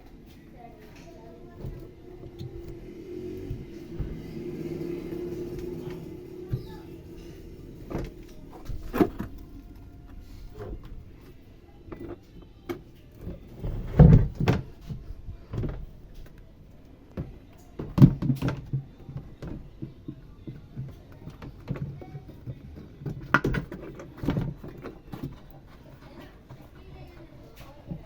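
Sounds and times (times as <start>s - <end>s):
washing machine parts clunking: 17.2s - 26.8s.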